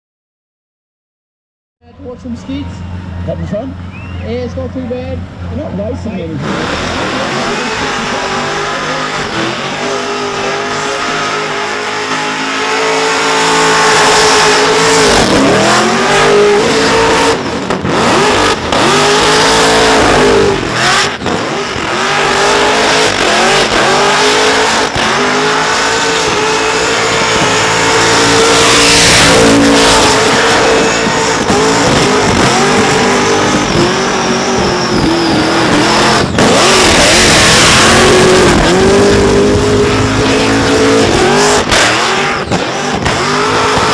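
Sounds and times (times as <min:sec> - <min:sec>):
car engine revving high: 0:02.0 - 0:43.9
tyre screech: 0:06.2 - 0:43.9.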